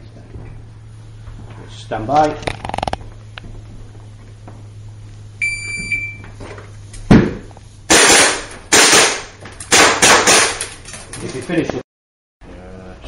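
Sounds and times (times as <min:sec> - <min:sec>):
shot timer beep: 0:05.4 - 0:06.2
pistol shots ringing: 0:07.9 - 0:10.6.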